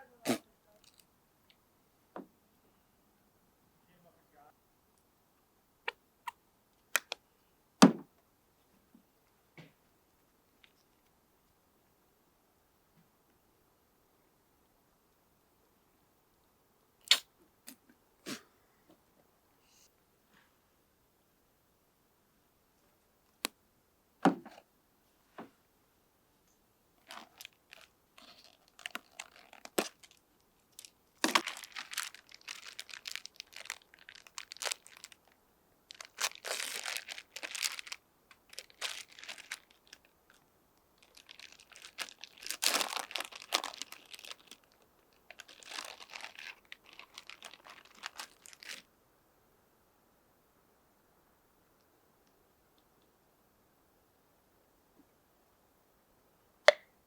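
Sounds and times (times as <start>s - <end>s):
crinkling handling noise: 27.0s - 48.9s.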